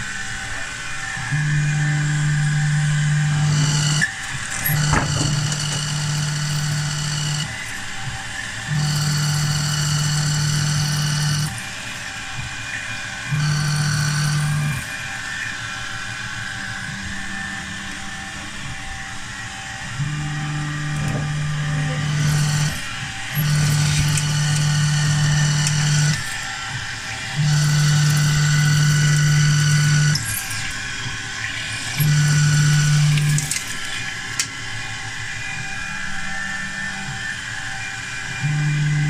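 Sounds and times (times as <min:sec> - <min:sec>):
milling machine motor whine: 0:00.0 - 0:39.0.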